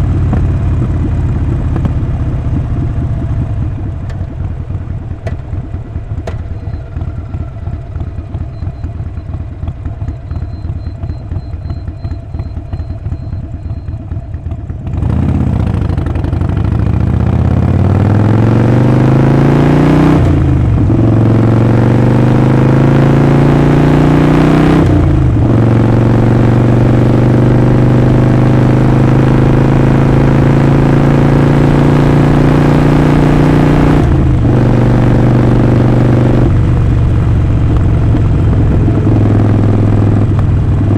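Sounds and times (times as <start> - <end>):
motorcycle engine idling: 0.0 - 17.6, 36.5 - 40.9
motorcycle accelerating through gears: 0.0 - 40.9.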